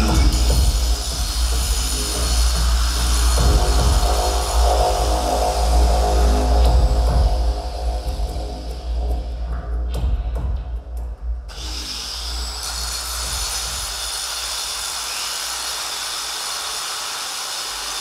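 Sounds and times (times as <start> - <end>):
music with bass: 0.0 - 13.8
angle grinder grinding metal: 11.5 - 18.0.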